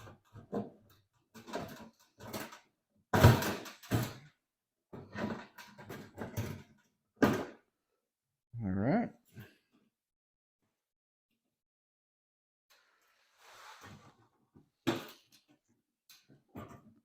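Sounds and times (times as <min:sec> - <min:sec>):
metal parts knocking and clattering: 0:00.0 - 0:07.5.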